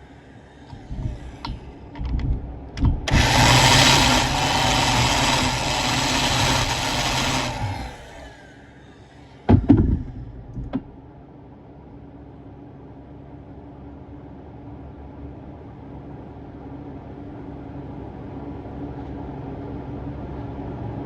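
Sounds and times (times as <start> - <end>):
small power tool running: 3.1 - 8.7.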